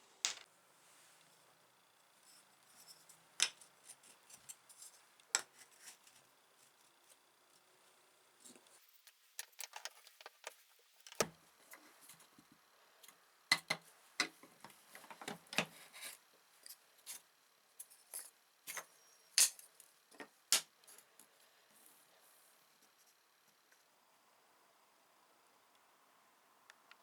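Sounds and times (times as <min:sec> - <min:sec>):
small tools clicking and tapping: 0:08.5 - 0:12.2, 0:13.0 - 0:15.8, 0:17.8 - 0:21.1.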